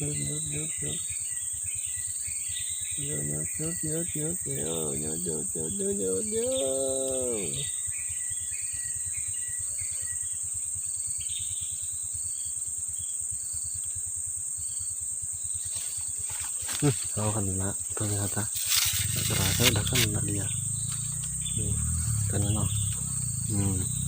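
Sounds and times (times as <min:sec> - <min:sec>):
drawn-out human voice: 0:00.0 - 0:01.0, 0:03.0 - 0:07.7, 0:16.7 - 0:20.5, 0:21.6 - 0:24.0
high-pitched insect drone: 0:00.0 - 0:24.0.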